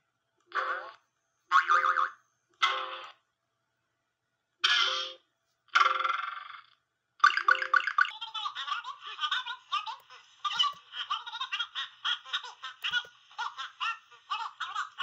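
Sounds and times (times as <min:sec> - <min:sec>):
high-pitched giggling laughter: 0:08.2 - 0:15.0.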